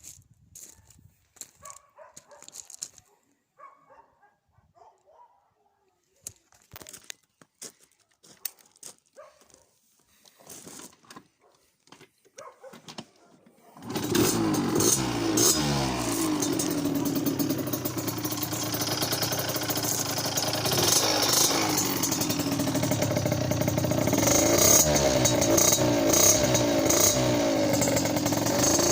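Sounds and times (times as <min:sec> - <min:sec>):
motorcycle engine revving: 0:13.8 - 0:28.9.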